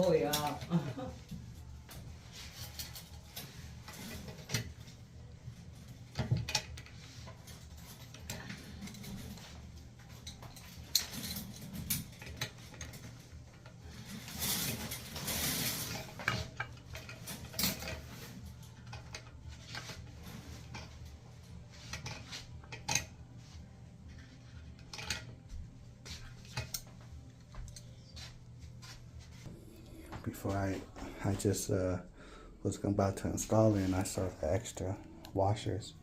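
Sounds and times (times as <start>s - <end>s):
small parts and tools clinking: 5.7s - 21.1s, 24.1s - 25.4s.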